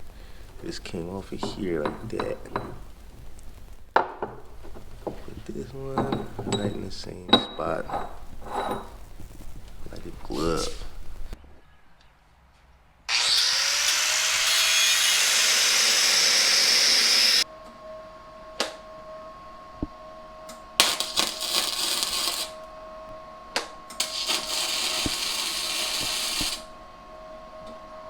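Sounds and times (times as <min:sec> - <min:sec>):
welding crackle: 0:02.9 - 0:03.9, 0:20.8 - 0:22.6, 0:24.0 - 0:26.7
power tool grinding: 0:13.1 - 0:17.4, 0:20.8 - 0:22.5, 0:24.0 - 0:26.7.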